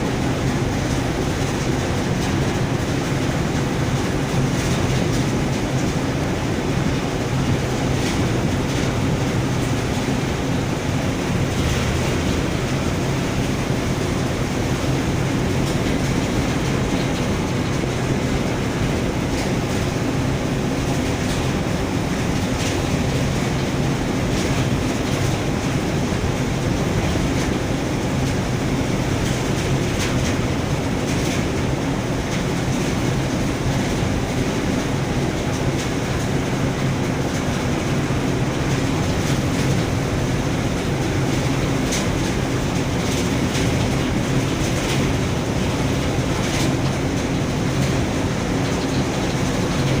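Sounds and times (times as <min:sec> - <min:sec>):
ship engine droning: 0:00.0 - 0:28.7.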